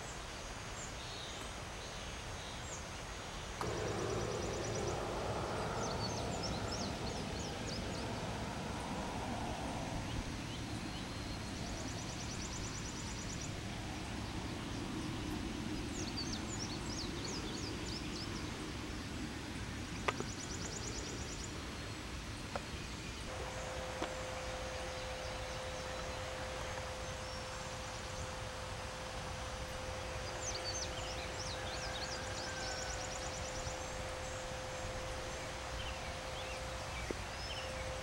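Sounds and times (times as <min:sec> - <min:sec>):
background hiss: 0:00.0 - 0:38.0
birds chirping: 0:03.6 - 0:19.2, 0:19.8 - 0:38.0
low hum: 0:03.6 - 0:38.0.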